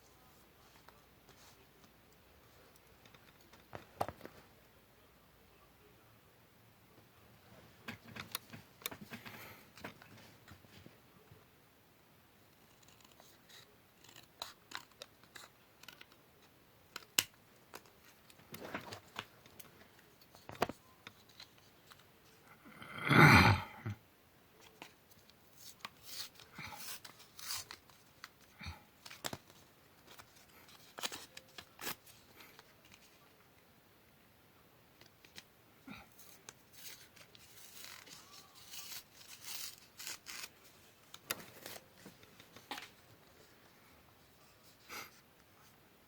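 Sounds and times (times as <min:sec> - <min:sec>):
scissors snipping paper: 0:12.6 - 0:16.2, 0:25.6 - 0:28.4, 0:36.2 - 0:40.5.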